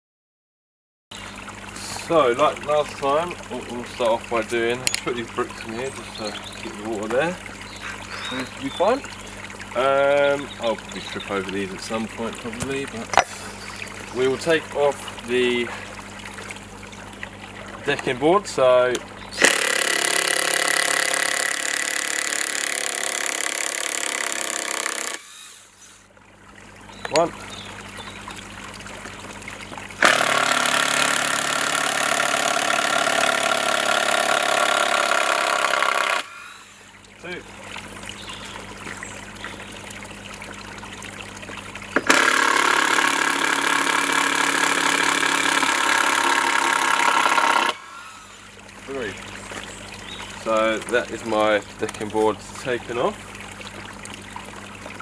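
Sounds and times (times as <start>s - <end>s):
power drill backing out a screw: 19.4s - 25.5s
power drill whining: 19.4s - 25.7s, 30.0s - 36.4s, 42.1s - 48.3s.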